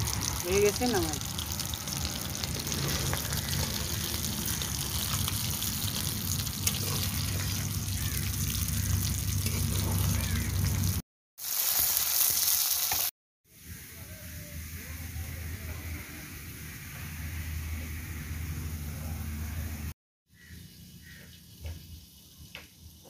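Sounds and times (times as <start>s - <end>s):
low hum: 0.0s - 11.0s
food sizzling in hot oil: 0.0s - 13.1s.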